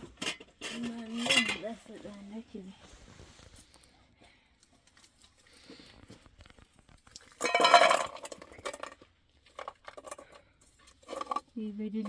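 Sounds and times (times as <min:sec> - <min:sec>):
kitchenware clinking: 0:07.4 - 0:09.0.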